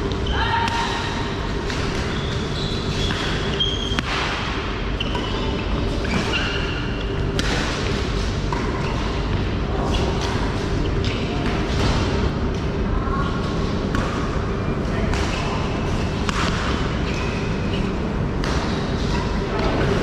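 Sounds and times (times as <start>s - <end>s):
racket hitting shuttlecock: 3.0s - 5.4s, 6.0s - 12.1s, 15.1s - 19.9s.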